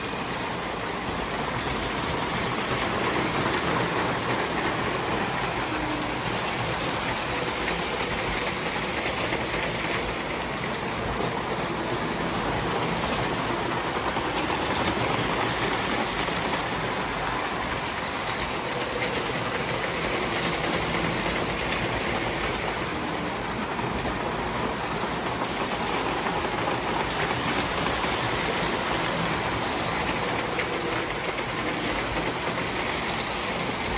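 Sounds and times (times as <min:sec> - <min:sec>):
model trains running on track: 0:00.0 - 0:33.9.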